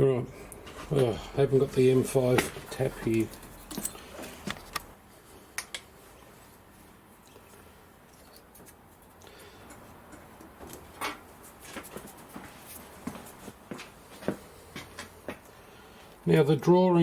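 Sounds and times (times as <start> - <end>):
faint room hum: 0.0 - 17.0
small tools clicking and knocking: 2.4 - 4.9.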